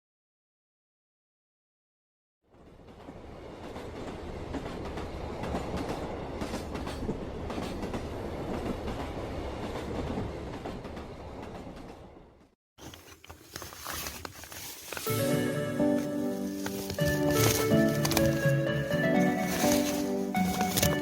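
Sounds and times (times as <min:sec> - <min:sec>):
train rumbling past: 0:02.5 - 0:12.5
rail clatter: 0:02.7 - 0:12.4.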